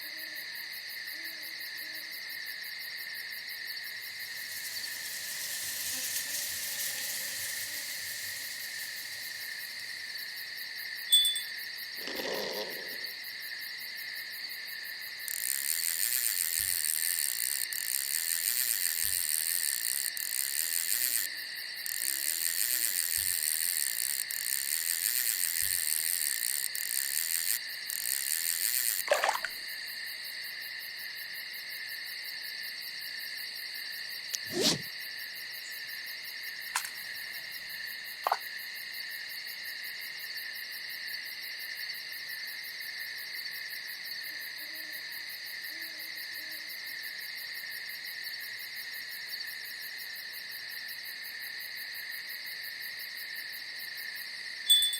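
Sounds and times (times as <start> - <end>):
insects trilling: 0.0 - 54.9
faint low hoots: 12.0 - 13.2.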